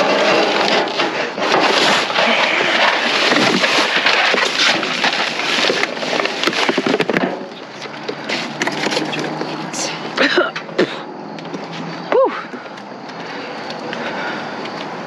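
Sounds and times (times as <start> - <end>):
rustling and clattering of packages: 0.0 - 10.2.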